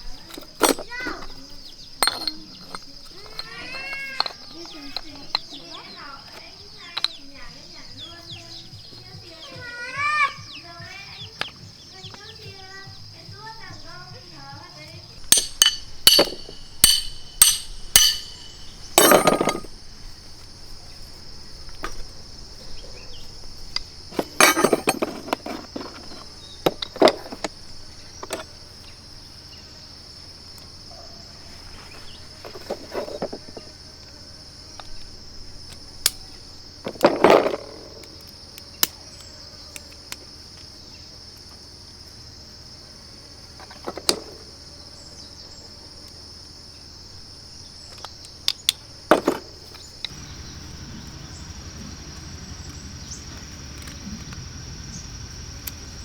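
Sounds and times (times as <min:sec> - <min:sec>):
metal tools clattering: 0:00.0 - 0:07.9, 0:15.2 - 0:28.9, 0:30.9 - 0:33.8, 0:36.8 - 0:38.1, 0:43.6 - 0:44.5, 0:47.9 - 0:50.8
sharp metallic clinks: 0:00.0 - 0:07.9, 0:15.1 - 0:20.3, 0:22.6 - 0:28.5
crickets chirping: 0:00.0 - 0:56.0
insects droning: 0:00.0 - 0:56.0.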